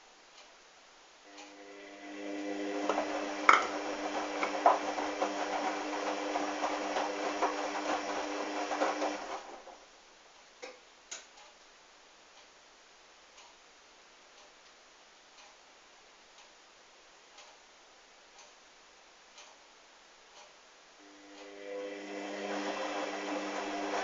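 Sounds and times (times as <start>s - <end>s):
washing machine drum motor humming: 1.3s - 9.8s, 21.1s - 24.0s.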